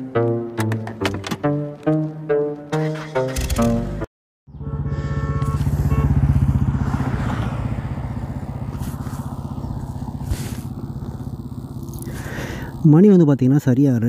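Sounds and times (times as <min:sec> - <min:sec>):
motorcycle engine running: 0:04.5 - 0:14.0.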